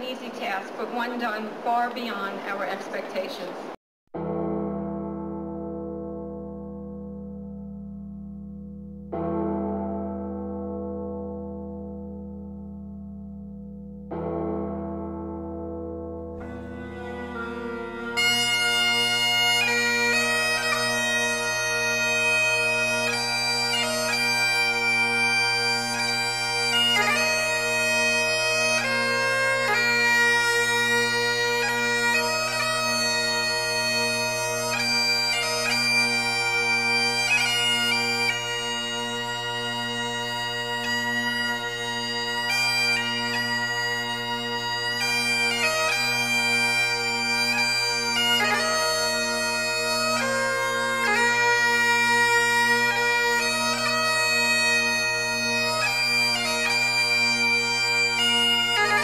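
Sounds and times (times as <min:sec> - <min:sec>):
bagpipes playing slow melody: 0:16.4 - 0:59.0.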